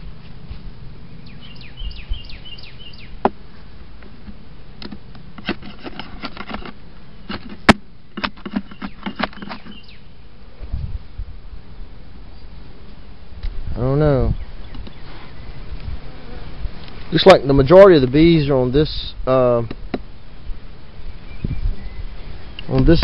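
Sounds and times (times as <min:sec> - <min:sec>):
wooden hive frames clicking: 0:04.3 - 0:09.9
honeybees buzzing: 0:14.5 - 0:18.7.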